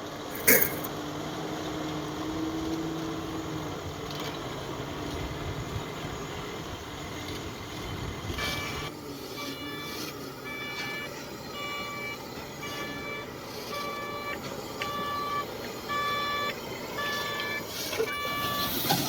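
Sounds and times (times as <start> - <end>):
diesel engine running: 0.0 - 19.0
pitched beeping: 13.8 - 18.8.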